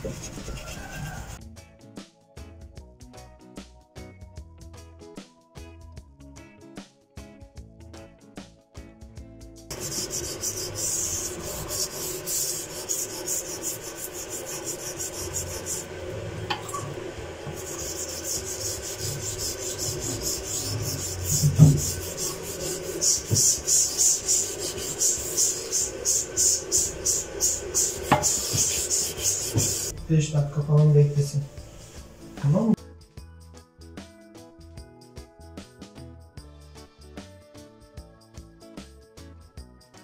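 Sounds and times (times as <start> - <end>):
rhythmic rubbing strokes: 0.0 - 1.4, 9.7 - 32.7.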